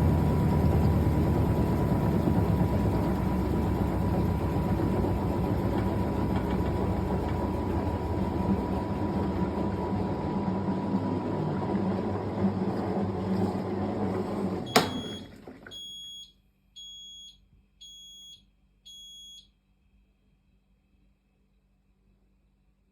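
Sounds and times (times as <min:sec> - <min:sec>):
washing machine spinning: 0:00.0 - 0:15.8
washing machine click: 0:14.7 - 0:15.3
short high beeps: 0:14.7 - 0:19.5.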